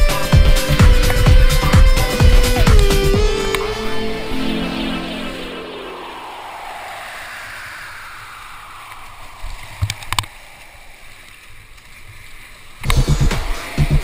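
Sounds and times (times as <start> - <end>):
electronic dance music: 0.0 - 6.3.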